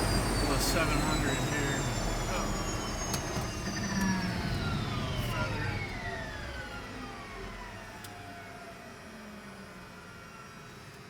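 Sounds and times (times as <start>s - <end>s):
turbine engine spooling down: 0.0s - 4.9s.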